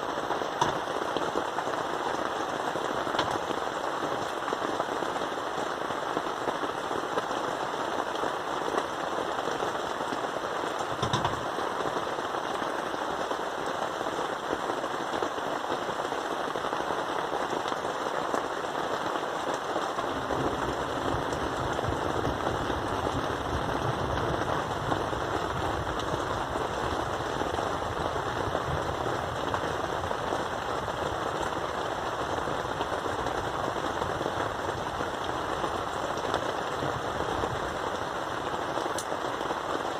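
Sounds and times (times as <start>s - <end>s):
heavy rain drumming: 0.0s - 39.9s
deep low rumble: 20.1s - 26.7s.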